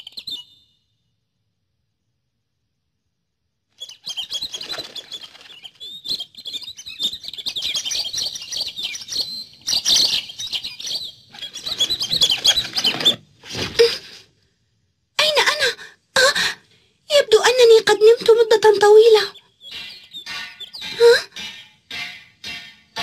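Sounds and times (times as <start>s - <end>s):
cartoon birds chirping: 0.0s - 0.8s, 3.8s - 13.2s, 17.1s - 22.1s.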